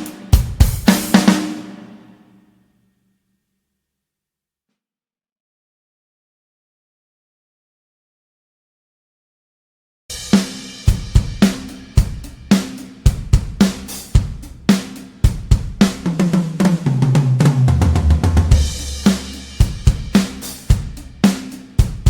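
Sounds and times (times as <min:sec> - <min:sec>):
drum kit groove: 0:00.0 - 0:02.2, 0:10.1 - 0:22.0
tom drum fill: 0:00.0 - 0:02.2, 0:10.1 - 0:22.0
crash cymbal: 0:18.5 - 0:21.8.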